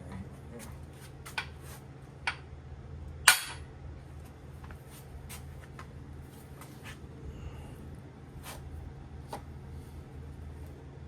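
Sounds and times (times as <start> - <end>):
steady low hum: 0.0 - 11.0
sharp metallic clank: 3.3 - 3.6.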